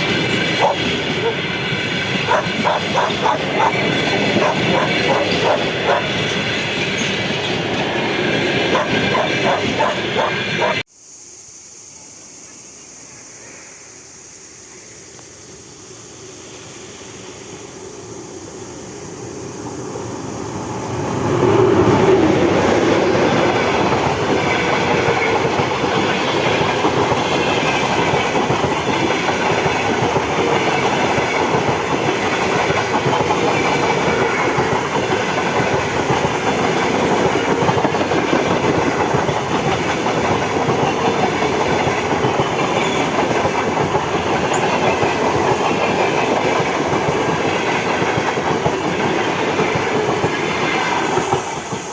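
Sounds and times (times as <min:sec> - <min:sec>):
wheels clacking on rail joints: 0:00.0 - 0:10.8, 0:21.2 - 0:51.9
train rushing past: 0:00.0 - 0:10.9, 0:13.3 - 0:51.9.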